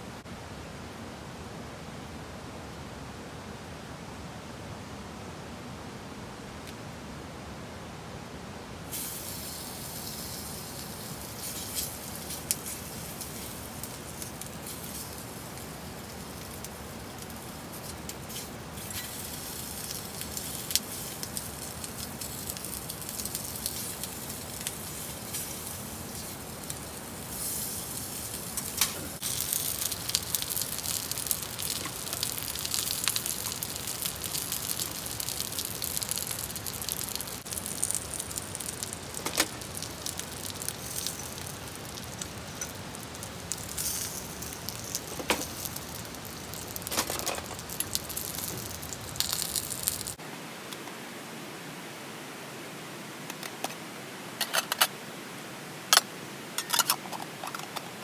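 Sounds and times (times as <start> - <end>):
wood fire crackling: 8.9 - 50.2
sharp pops of fire: 9.0 - 50.2.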